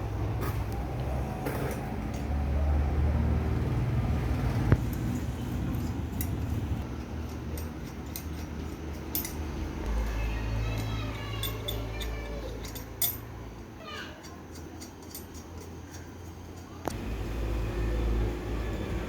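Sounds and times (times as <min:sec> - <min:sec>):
metal parts clinking: 0:05.7 - 0:13.4, 0:14.2 - 0:16.9.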